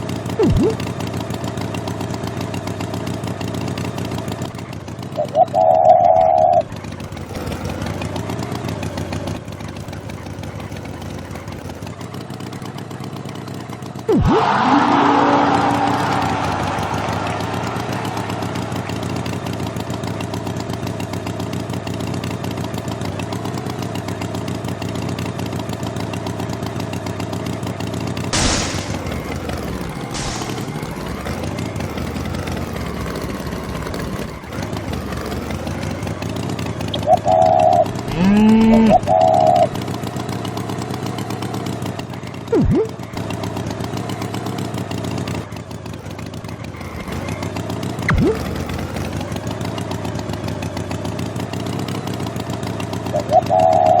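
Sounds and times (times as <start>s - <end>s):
engine running: 0.0s - 54.0s
short pitch-bending calls: 0.4s - 0.8s, 37.0s - 39.7s
sharp knocks: 28.3s - 31.8s.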